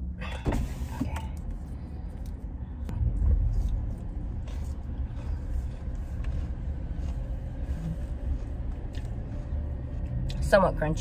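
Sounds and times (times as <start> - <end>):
crunchy chewing: 3.5 - 10.4.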